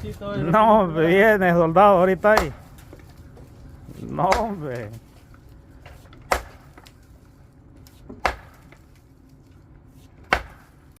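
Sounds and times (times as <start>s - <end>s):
nails hammered into wood: 6.3s - 6.6s.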